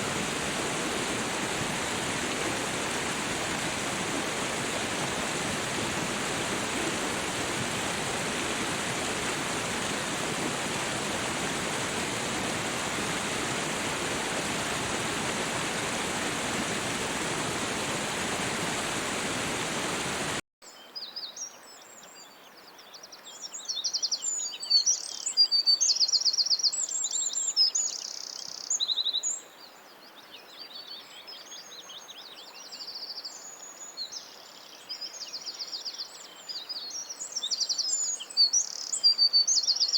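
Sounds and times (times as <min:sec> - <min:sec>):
water rushing: 0:00.0 - 0:20.4
songbirds singing: 0:20.7 - 0:39.9.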